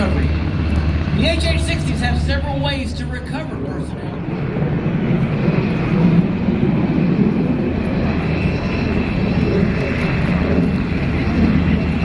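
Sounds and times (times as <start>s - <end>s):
helicopter rotor and engine noise: 0.0s - 12.0s
steady high whine: 0.0s - 12.0s.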